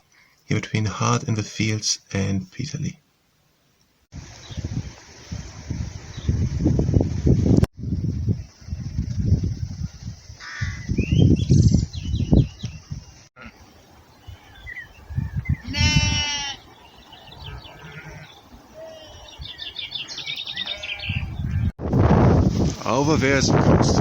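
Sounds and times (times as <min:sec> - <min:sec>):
wind rumble on microphone: 0:04.1 - 0:13.3, 0:13.9 - 0:24.0
small birds chirping: 0:04.4 - 0:04.9, 0:08.3 - 0:21.7
sheep bleating: 0:15.6 - 0:16.6, 0:17.5 - 0:19.1.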